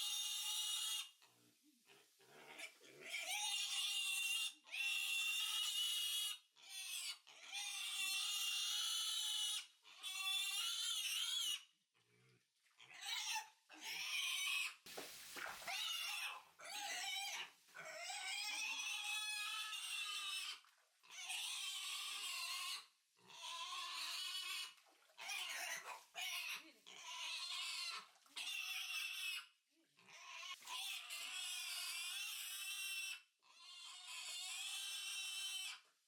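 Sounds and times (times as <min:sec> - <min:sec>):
piglet squealing: 0:15.4 - 0:29.4.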